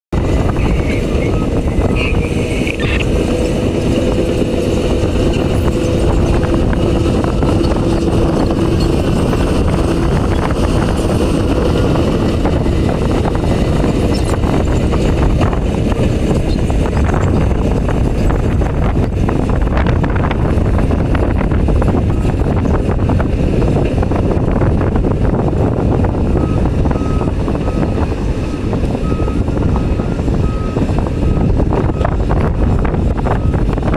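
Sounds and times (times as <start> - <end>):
excavator diesel engine and hydraulics: 0.2 - 33.9
steady whining tone: 0.2 - 33.9
backup beeper: 0.3 - 3.8.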